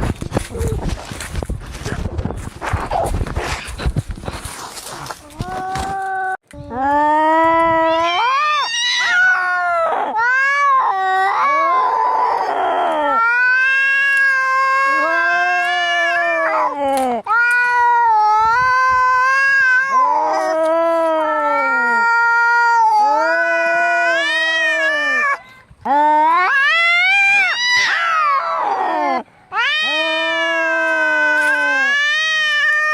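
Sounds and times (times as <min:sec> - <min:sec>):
cats yowling in a fight: 0:07.5 - 0:25.4, 0:26.2 - 0:32.9.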